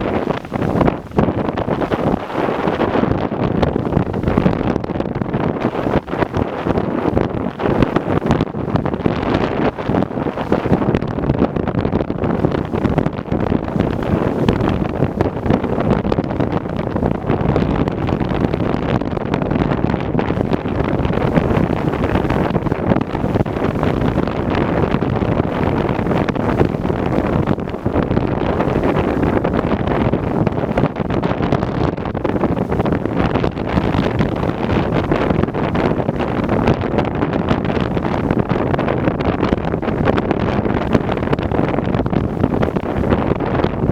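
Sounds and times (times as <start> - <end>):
gusty wind buffeting microphone: 0.0 - 43.9.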